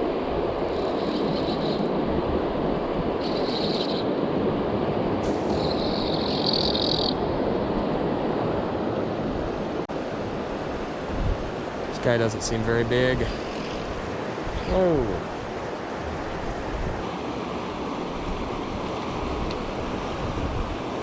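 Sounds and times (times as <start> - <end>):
flowing river water: 0.0 - 21.0
high-pitched buzzing: 13.2 - 14.9.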